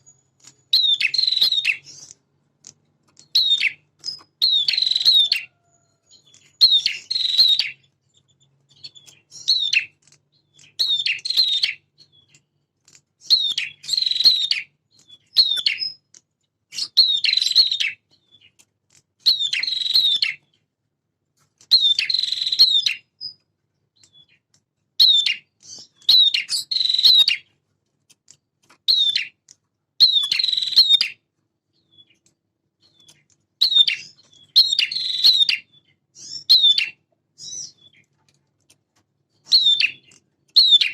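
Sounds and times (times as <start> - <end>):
bird singing sharp chirps: 0.0 - 2.2, 3.2 - 7.9, 8.7 - 12.4, 13.2 - 16.0, 19.3 - 20.5, 21.7 - 23.4, 25.0 - 27.5, 30.0 - 31.2, 32.8 - 38.0.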